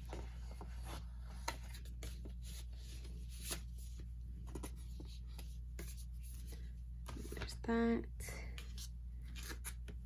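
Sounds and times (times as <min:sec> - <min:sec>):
paper and card rustling: 0:00.0 - 0:07.7, 0:08.4 - 0:10.0.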